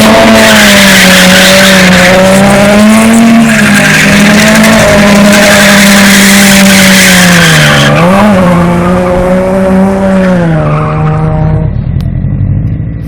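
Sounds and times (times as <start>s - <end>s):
tyre squeal and skid: 0.0s - 8.8s, 10.0s - 11.6s
car engine at high revs: 0.0s - 13.0s.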